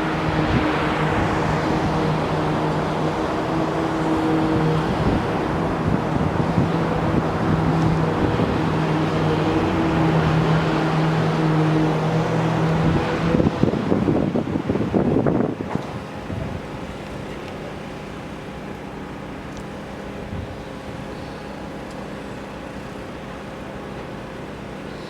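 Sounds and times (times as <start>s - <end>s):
wind buffeting microphone: 0.0s - 17.3s, 20.2s - 21.1s
engine humming: 0.0s - 25.0s.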